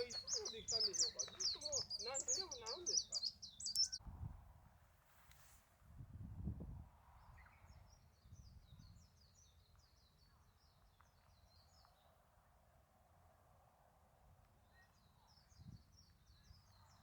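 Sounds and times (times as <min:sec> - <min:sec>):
high bird chirping: 0:00.0 - 0:04.0.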